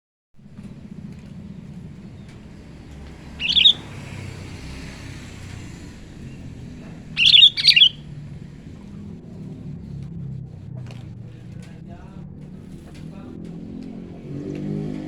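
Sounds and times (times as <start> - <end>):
bird calling: 2.1 - 4.7, 7.0 - 8.2.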